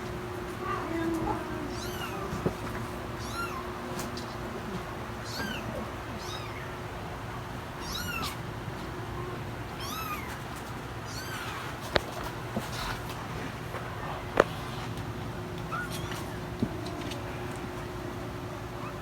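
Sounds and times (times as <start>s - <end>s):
kittens mewing: 0.5s - 7.0s, 7.8s - 8.5s.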